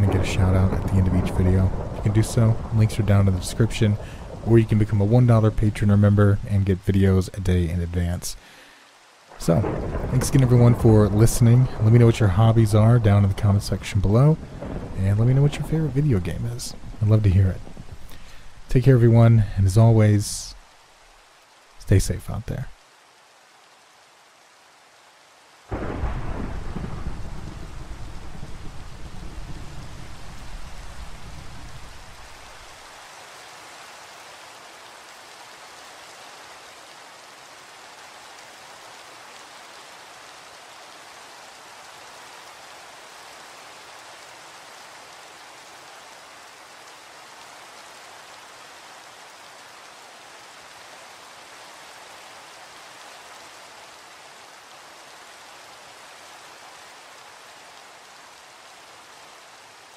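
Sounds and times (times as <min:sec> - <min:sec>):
thunder rumbling: 0:00.0 - 0:05.7, 0:09.3 - 0:20.4, 0:25.7 - 0:32.8
steady rain falling: 0:00.0 - 0:59.9.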